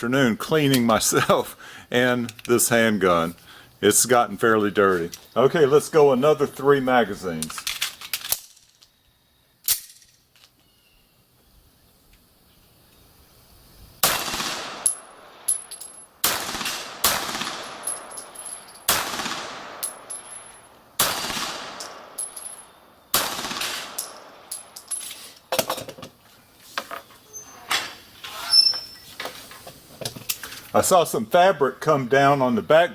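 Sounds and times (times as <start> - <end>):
sharp cracks: 9.6 - 10.6, 14.0 - 25.0
pistol shots with echo: 14.0 - 15.4, 16.2 - 18.3, 18.9 - 24.5
metallic clinks: 14.8 - 16.2, 17.7 - 18.9, 19.8 - 20.7, 21.8 - 22.8, 23.9 - 25.9.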